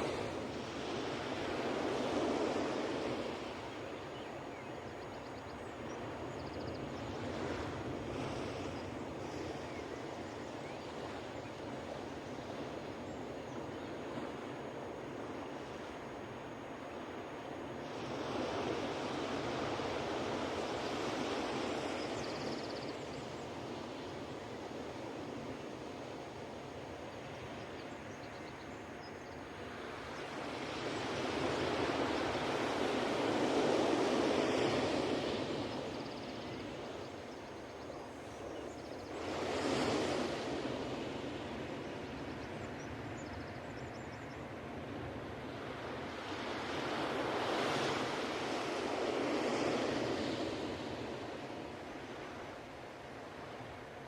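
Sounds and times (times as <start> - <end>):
ocean surf breaking on beach: 0.0 - 4.0, 29.5 - 37.3, 39.1 - 43.1, 44.8 - 54.0.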